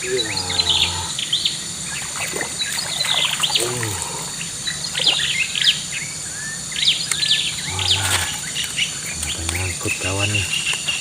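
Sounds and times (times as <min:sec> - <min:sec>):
low falling bird call: 0:00.0 - 0:09.7
birds chirping: 0:00.0 - 0:11.0
high-pitched background drone: 0:00.0 - 0:11.0.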